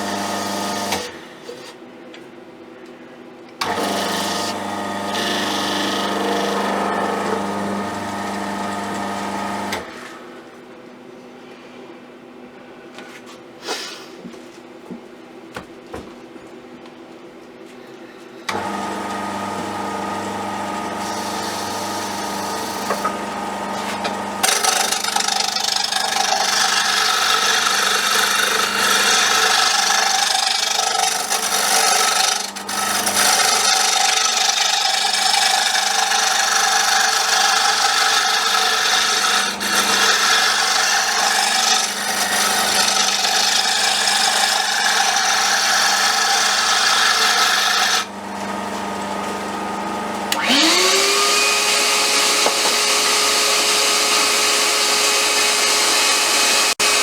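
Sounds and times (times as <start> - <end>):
wood lathe motor hum: 0.0 - 1.2, 3.6 - 10.1, 18.5 - 57.0
turning tool scraping wood: 3.7 - 10.1, 18.5 - 49.4, 50.3 - 57.0.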